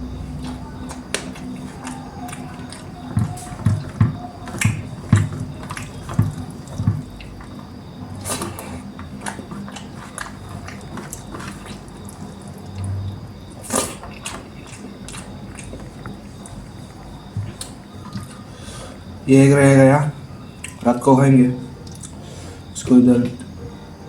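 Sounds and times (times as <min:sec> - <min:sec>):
wet chewing and mouth smacks: 0:00.4 - 0:18.4, 0:20.6 - 0:20.8, 0:21.8 - 0:22.2
soft low thumps with clicks: 0:03.2 - 0:07.3.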